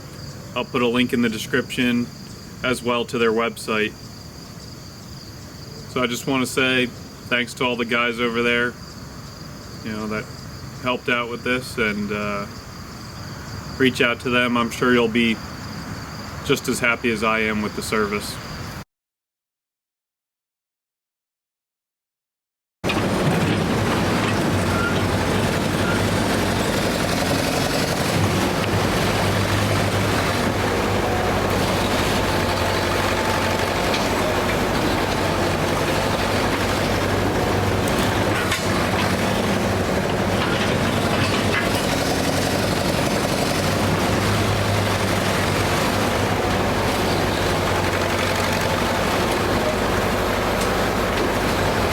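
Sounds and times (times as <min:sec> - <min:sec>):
backhoe diesel engine running: 0:22.8 - 0:51.9.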